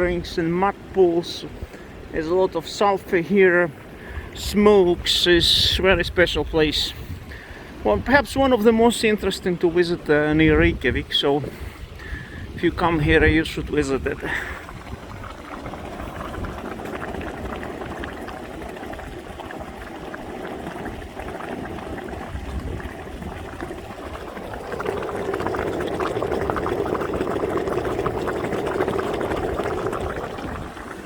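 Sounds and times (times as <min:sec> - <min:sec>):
mud bubbling and gurgling: 0:10.4 - 0:31.0.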